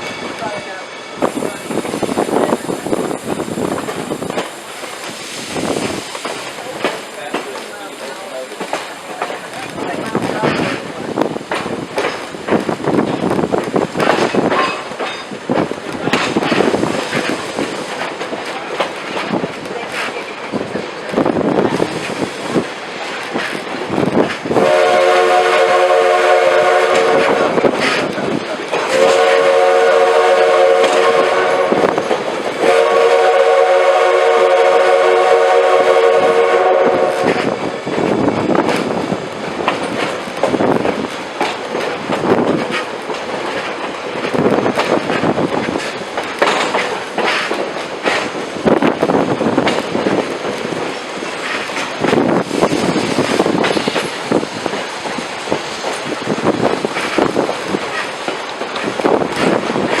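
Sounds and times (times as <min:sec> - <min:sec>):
train cars clattering: 0:00.0 - 1:00.0
wind buffeting microphone: 0:01.2 - 0:07.2, 0:08.7 - 1:00.0
steam locomotive chime whistle: 0:24.6 - 0:27.5, 0:28.9 - 0:31.8, 0:32.6 - 0:37.4.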